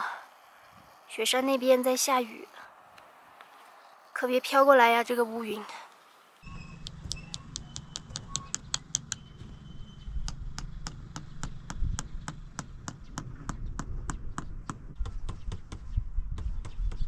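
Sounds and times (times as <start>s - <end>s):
wind rumbling on microphone: 6.4s - 17.0s
rapid sharp clicking: 6.8s - 9.3s.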